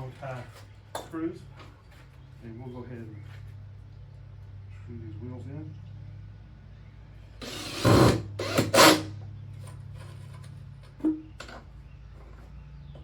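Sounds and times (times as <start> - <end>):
power driver driving screw into wood: 7.4 - 9.1.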